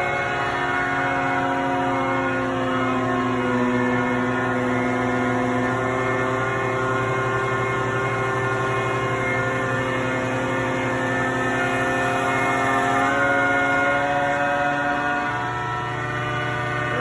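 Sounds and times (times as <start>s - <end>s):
hydraulic pump whining: 0.0s - 17.0s.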